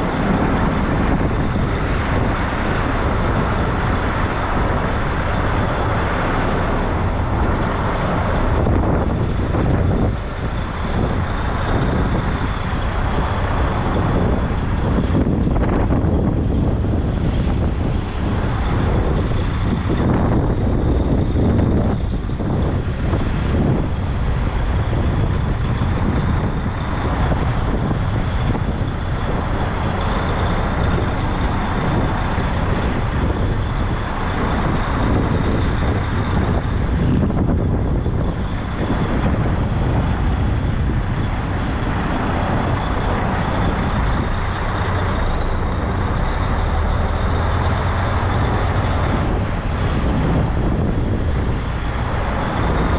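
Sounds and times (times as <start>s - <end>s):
diesel engine rumbling: 0.0s - 52.9s
steady high whine: 0.0s - 52.9s.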